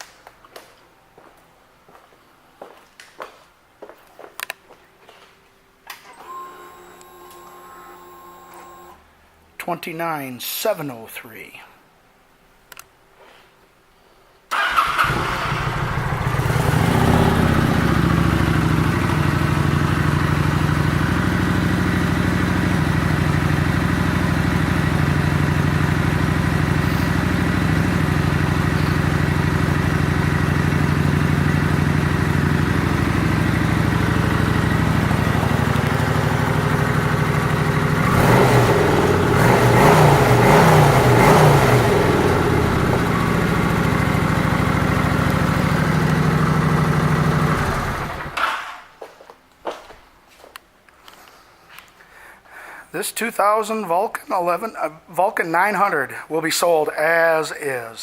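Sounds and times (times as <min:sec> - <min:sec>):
motorcycle engine starting and idling: 0:14.5 - 0:48.8
motorcycle engine revving: 0:14.6 - 0:48.4.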